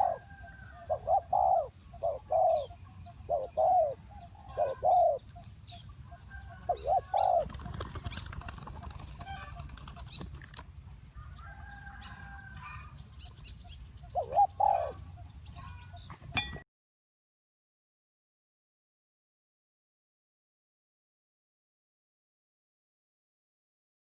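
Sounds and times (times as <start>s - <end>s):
dove cooing: 0.0s - 10.5s, 14.1s - 15.2s
wings flapping: 7.3s - 10.7s.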